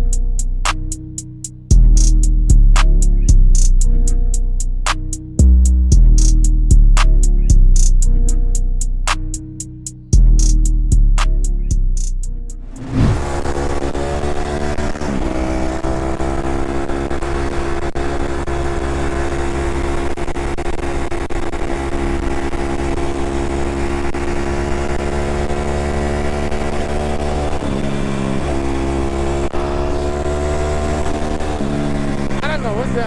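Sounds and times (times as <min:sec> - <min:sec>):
dirt bike engine running: 0:12.7 - 0:28.9.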